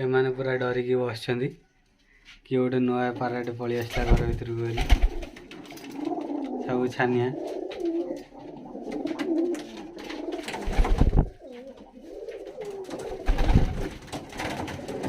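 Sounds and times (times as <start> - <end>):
pigeons cooing: 5.0 - 15.0.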